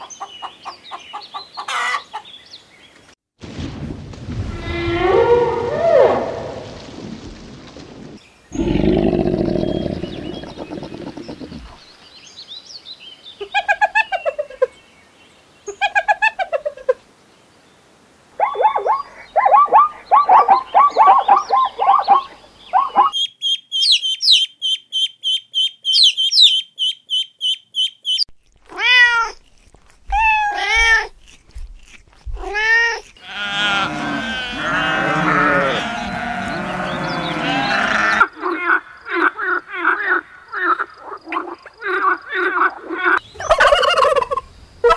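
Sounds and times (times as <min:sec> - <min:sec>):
animal calls rising and falling: 0:08.6 - 0:11.8, 0:33.2 - 0:38.3
animal yelping: 0:08.6 - 0:11.8, 0:32.4 - 0:38.3
goats bleating: 0:33.1 - 0:38.2.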